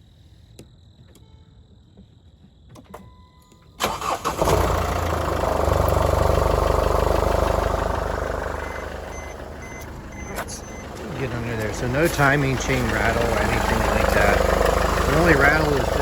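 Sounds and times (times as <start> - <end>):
diesel engine cranking and idling: 3.8 - 16.0.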